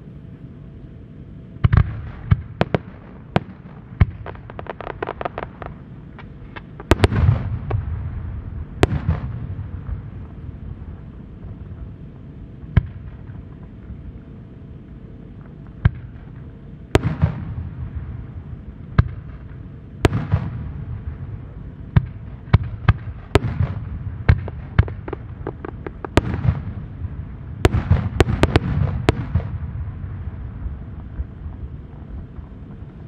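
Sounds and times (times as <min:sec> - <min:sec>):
firework shells bursting: 0:22.6 - 0:27.0.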